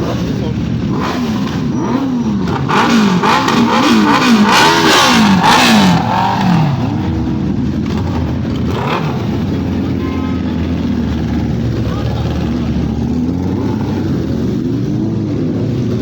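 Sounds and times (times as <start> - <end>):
motorcycle engine revving: 0.0 - 16.0
motorcycle engine idling: 6.1 - 14.6.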